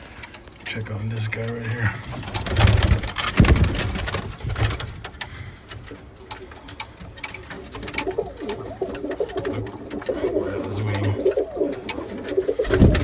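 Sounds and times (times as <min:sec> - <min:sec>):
rustling: 0:00.0 - 0:13.0
pigeons cooing: 0:05.2 - 0:13.0.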